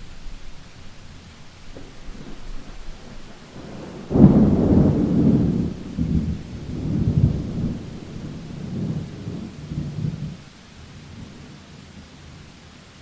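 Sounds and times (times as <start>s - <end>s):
steady rain: 0.0s - 13.0s
thunderclap with deep rumble: 1.5s - 10.5s.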